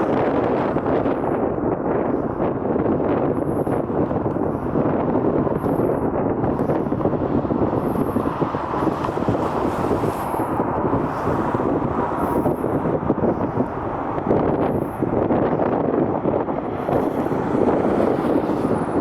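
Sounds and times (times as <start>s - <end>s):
wind on microphone: 0.0s - 19.0s
jet engines roaring: 3.2s - 19.0s.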